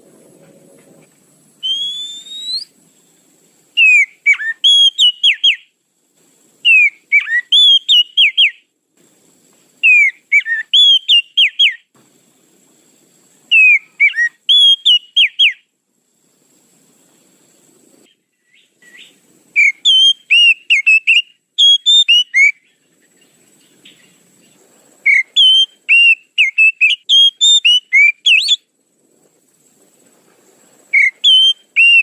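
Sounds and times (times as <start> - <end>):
bird whistled song: 1.6 - 2.8, 3.8 - 5.7, 6.6 - 8.6, 9.8 - 11.9, 13.5 - 15.7, 18.1 - 24.2, 25.0 - 28.7, 30.9 - 32.0
rising whistle: 1.6 - 2.8, 30.9 - 32.0.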